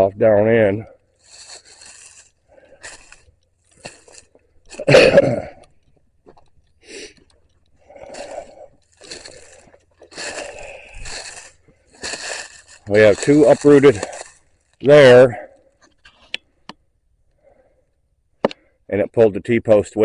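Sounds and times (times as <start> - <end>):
footsteps crunching through leaves: 1.0 - 5.2, 7.9 - 15.0.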